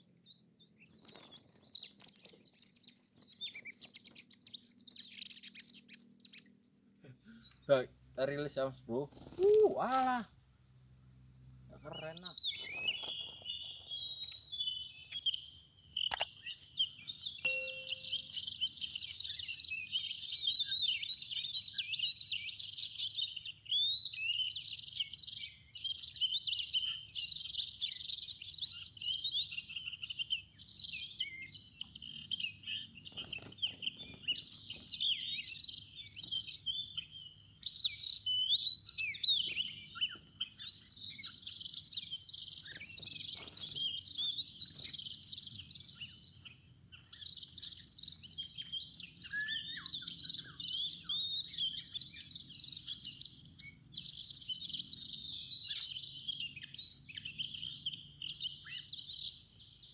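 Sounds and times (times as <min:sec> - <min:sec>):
bird song whistles and chirps: 0:00.0 - 0:10.2, 0:11.7 - 0:59.9
high-pitched insect drone: 0:07.2 - 0:12.4.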